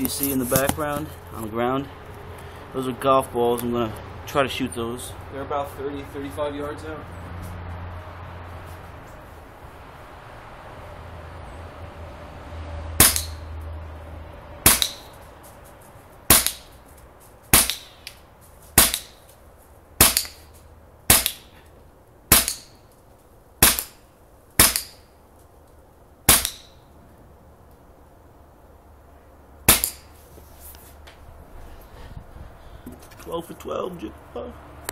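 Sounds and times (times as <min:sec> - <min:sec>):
air rifle shots: 0:13.0 - 0:13.5, 0:14.6 - 0:15.2, 0:16.3 - 0:16.8, 0:17.5 - 0:18.1, 0:18.8 - 0:19.3, 0:20.0 - 0:20.5, 0:21.1 - 0:21.6, 0:22.3 - 0:22.8, 0:23.6 - 0:24.0, 0:24.6 - 0:25.1, 0:26.3 - 0:26.9, 0:29.7 - 0:30.1.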